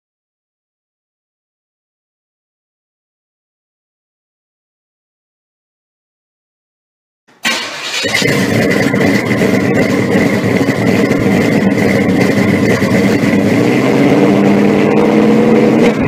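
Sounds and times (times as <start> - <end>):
car engine idling: 7.4 - 16.0.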